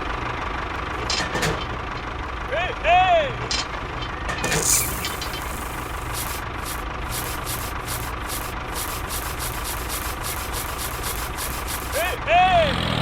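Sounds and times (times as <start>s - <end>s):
small tractor engine ticking: 3.6s - 12.2s
brief hiss: 4.6s - 12.2s.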